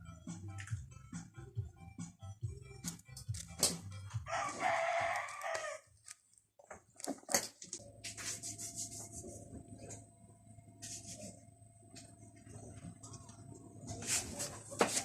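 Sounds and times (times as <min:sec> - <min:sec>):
rooster crowing: 0:04.2 - 0:05.9
faint steady hum: 0:06.3 - 0:14.8.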